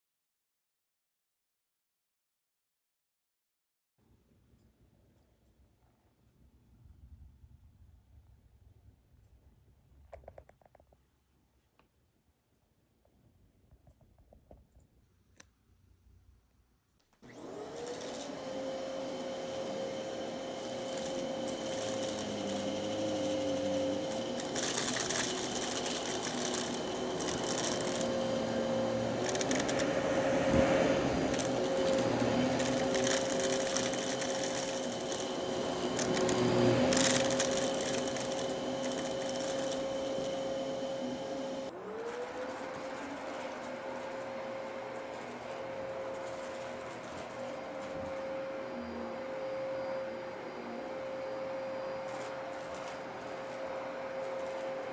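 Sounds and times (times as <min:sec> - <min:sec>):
vacuum cleaner motor whine: 0:17.2 - 0:54.9.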